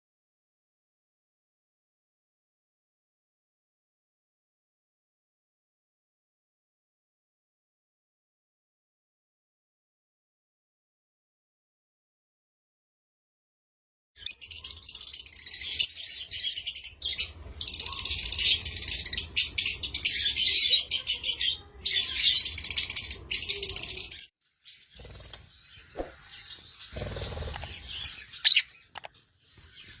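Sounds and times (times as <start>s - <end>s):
lovebirds chirping: 14.2s - 30.0s.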